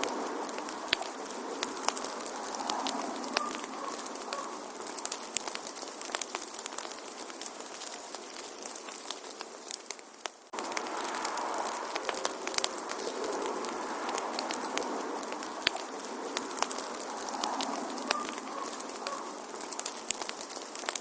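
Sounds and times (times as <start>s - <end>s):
hiss of flames: 0.0s - 21.0s
wood fire crackling and popping: 0.0s - 21.0s.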